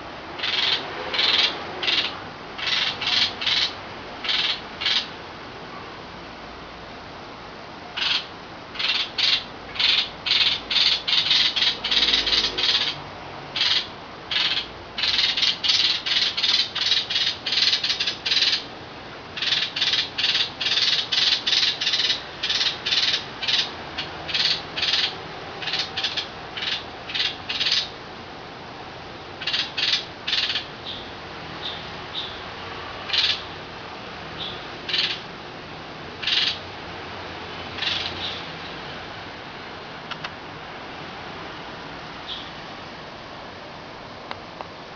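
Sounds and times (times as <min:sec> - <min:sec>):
young birds cheeping: 0:00.4 - 0:05.1, 0:08.0 - 0:13.0, 0:13.6 - 0:18.7, 0:19.4 - 0:28.0, 0:29.4 - 0:33.6, 0:34.3 - 0:35.3, 0:36.2 - 0:36.7, 0:37.7 - 0:38.8, 0:42.2 - 0:42.6.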